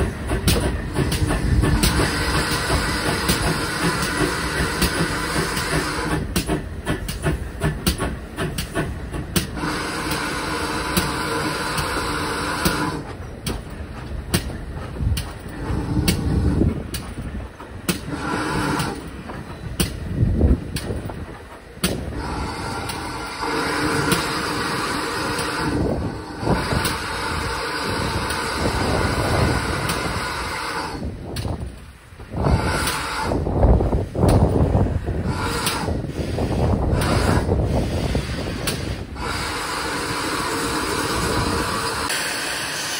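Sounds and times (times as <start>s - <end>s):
sharp clicks and knocks: 0.0s - 10.2s, 12.6s - 18.1s, 18.8s - 22.1s
steam train running on track: 0.0s - 42.9s.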